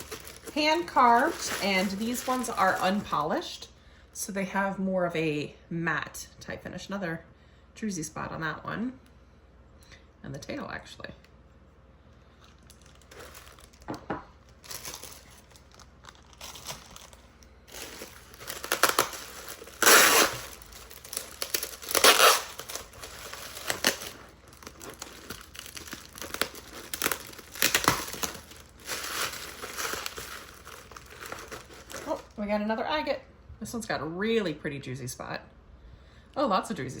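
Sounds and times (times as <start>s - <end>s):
packaging crinkling and tearing: 0.0s - 3.4s, 12.4s - 32.4s.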